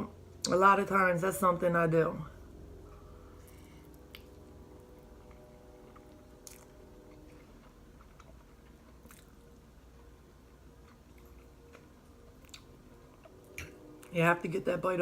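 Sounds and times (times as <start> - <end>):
low room hum: 0.0 - 15.0
person chewing food: 2.8 - 14.1.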